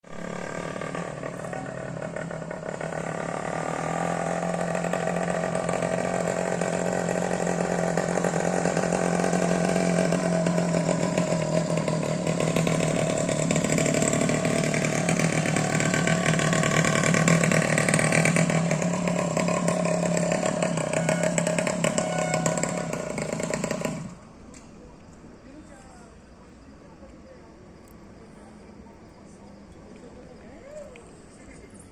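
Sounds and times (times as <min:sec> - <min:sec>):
motorcycle engine at high revs: 0:00.0 - 0:24.3.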